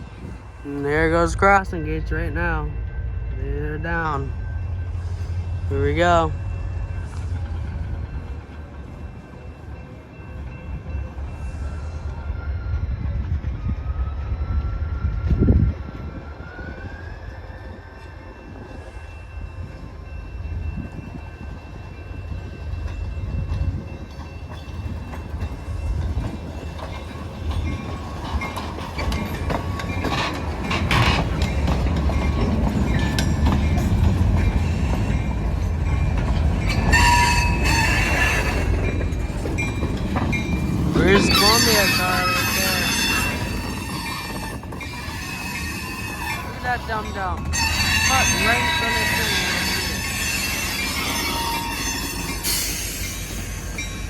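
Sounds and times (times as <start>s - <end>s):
train low rumble: 0.0s - 54.0s
train clatter of clicks and knocks: 19.5s - 54.0s.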